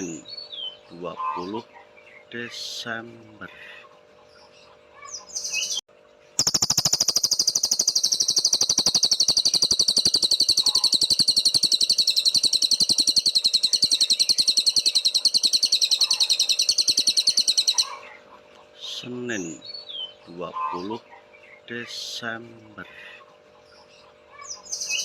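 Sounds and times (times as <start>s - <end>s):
songbird trilling: 6.4s - 18.1s.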